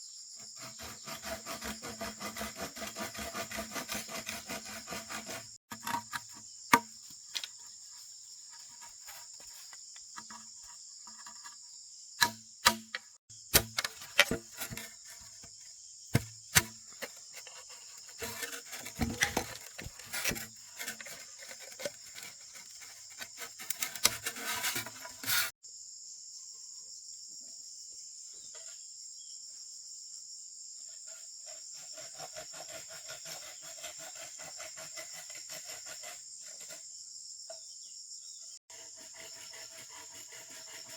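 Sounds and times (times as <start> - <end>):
insects chirring: 0.0 - 40.9
knocks and clatter of tools: 12.2 - 25.5.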